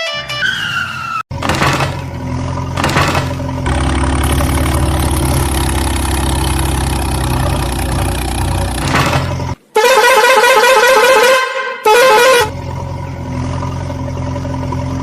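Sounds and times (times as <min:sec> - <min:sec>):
large vehicle engine idling: 0:01.3 - 0:09.7, 0:12.5 - 0:15.0.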